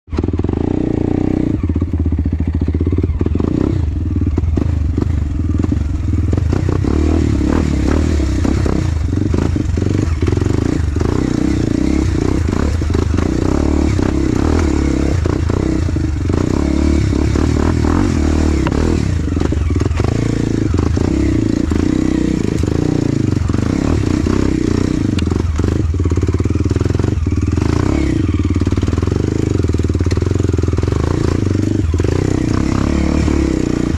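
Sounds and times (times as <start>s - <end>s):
motorcycle engine running: 0.1s - 33.9s.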